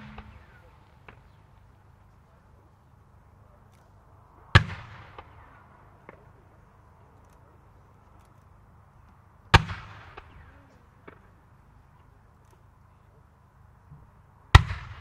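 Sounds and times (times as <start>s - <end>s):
firework loud sharp report: 0.0s - 1.4s.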